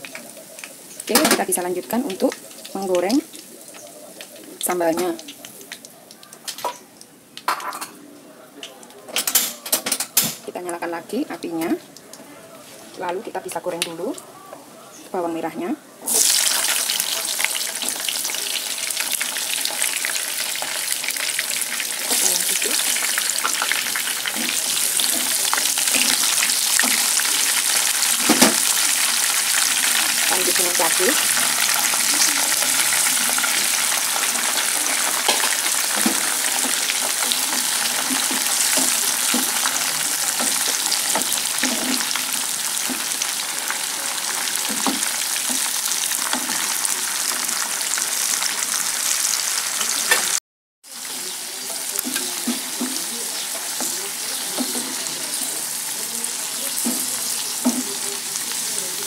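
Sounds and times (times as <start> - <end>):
food sizzling in hot oil: 0.0 - 7.9, 15.4 - 59.0
wooden spatula stirring pan: 16.1 - 47.6, 50.9 - 58.7.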